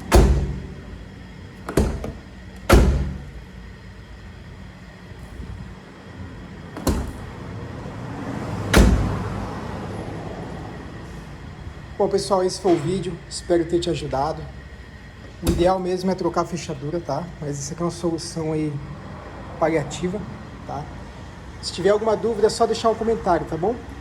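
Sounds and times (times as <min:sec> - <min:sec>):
car door clunk: 0:00.0 - 0:03.5, 0:06.7 - 0:07.6, 0:08.6 - 0:09.4, 0:15.4 - 0:15.8
car door slamming: 0:00.0 - 0:03.5, 0:06.7 - 0:07.6, 0:08.6 - 0:09.5, 0:15.4 - 0:15.8.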